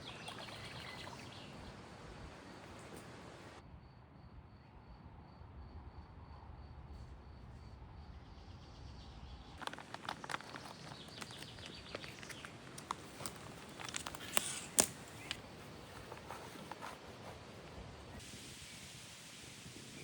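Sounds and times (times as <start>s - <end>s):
sharp clicks and crackles: 9.6s - 15.4s.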